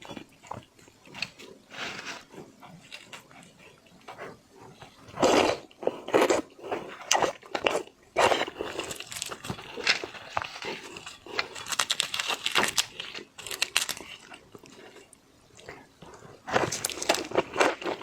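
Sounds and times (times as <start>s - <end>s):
crunchy bites and wet chewing: 4.8s - 18.0s.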